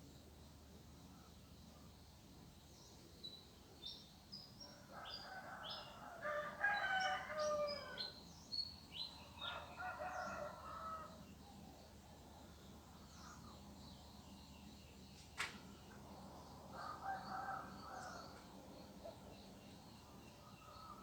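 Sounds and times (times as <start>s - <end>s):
rooster crowing: 5.0s - 8.1s, 9.4s - 11.2s.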